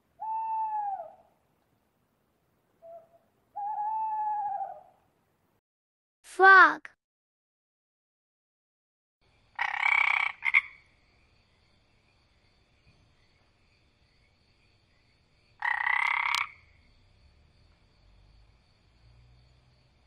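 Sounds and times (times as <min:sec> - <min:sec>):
frog croaking: 0:09.5 - 0:10.9, 0:15.6 - 0:16.8.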